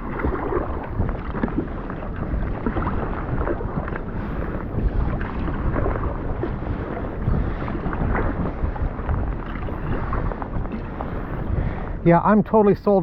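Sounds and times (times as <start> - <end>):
water splashing around kayak: 0.0 - 13.0
wind buffeting microphone: 0.0 - 13.0.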